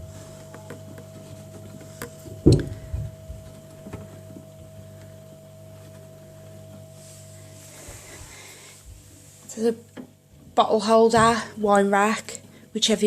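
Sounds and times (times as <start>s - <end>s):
low hum: 0.0s - 10.5s
fridge fittings knocking: 2.3s - 3.4s.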